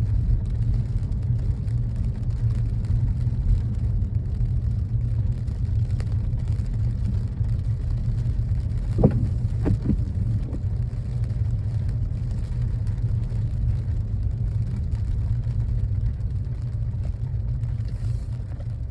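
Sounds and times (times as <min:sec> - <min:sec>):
car engine and road noise: 0:00.0 - 0:18.9
sharp thump: 0:08.9 - 0:10.6.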